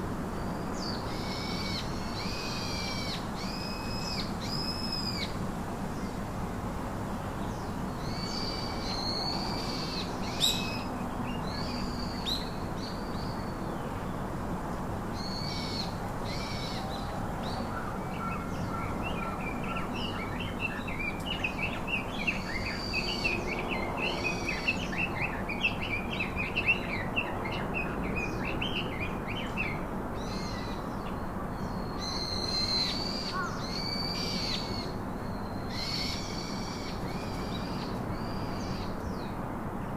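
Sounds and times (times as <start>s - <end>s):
birds calling and singing: 7.4s - 14.2s, 15.2s - 39.4s.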